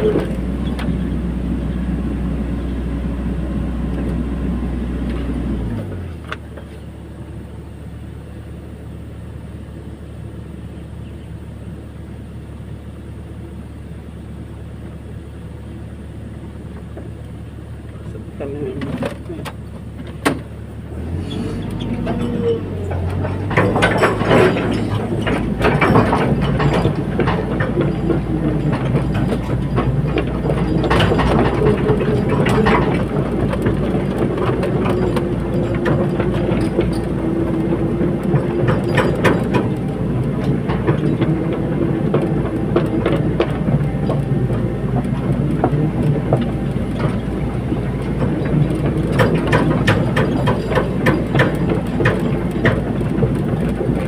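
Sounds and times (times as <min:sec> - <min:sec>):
excavator diesel engine: 0:00.0 - 0:54.0
metallic clanks and knocks: 0:21.2 - 0:54.0.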